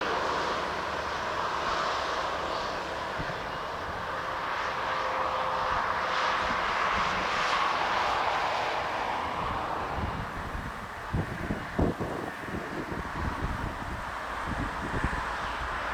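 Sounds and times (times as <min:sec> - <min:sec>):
jet airliner landing: 0:00.0 - 0:15.9
wind buffeting microphone: 0:05.7 - 0:15.9.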